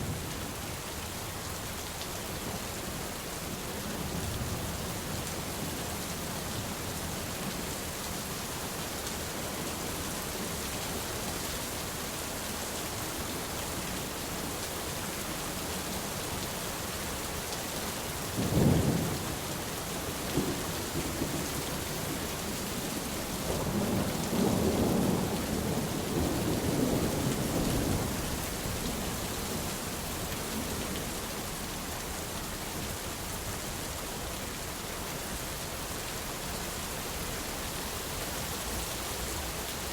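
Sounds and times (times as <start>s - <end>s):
steady rain falling: 0.0s - 39.9s
rolling rumble of thunder: 18.4s - 31.1s.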